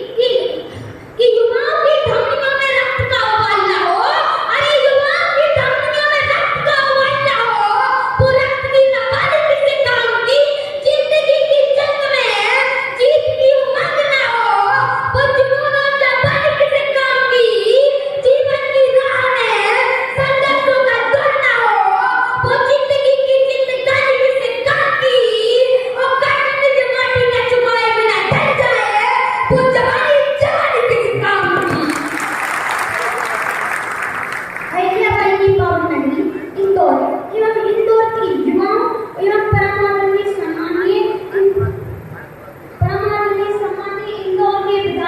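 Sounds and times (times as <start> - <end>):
child singing: 1.2 - 31.9.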